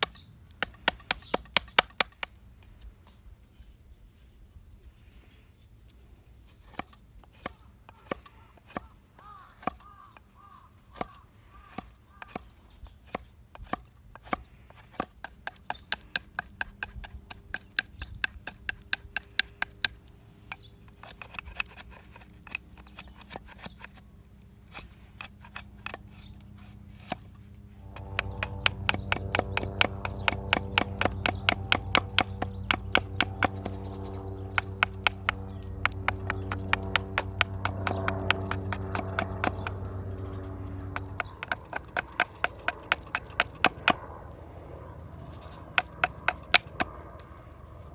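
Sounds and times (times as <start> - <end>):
hand tool knocking on wood: 27.8 - 40.0, 40.6 - 44.0, 45.7 - 46.9.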